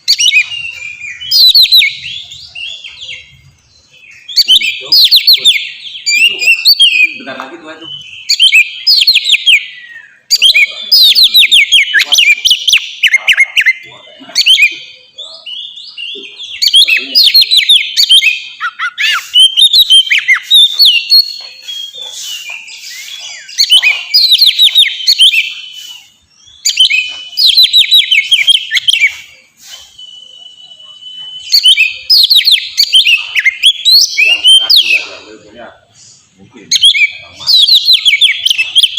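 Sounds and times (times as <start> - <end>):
songbird whistling trills: 0.0 - 35.5, 36.7 - 38.9.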